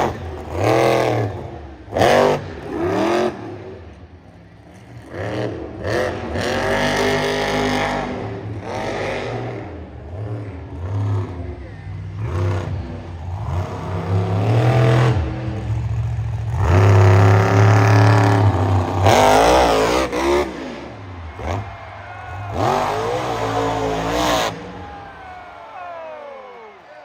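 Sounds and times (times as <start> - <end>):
monster truck engine revving: 0.0 - 4.0, 4.6 - 26.8.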